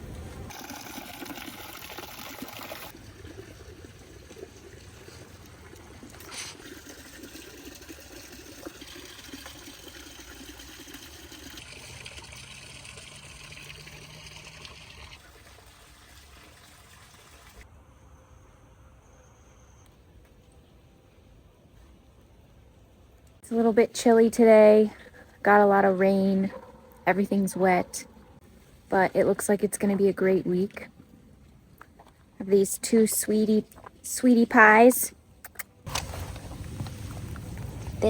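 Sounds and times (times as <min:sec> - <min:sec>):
water trickling: 0:00.0 - 0:17.6, 0:35.9 - 0:38.0.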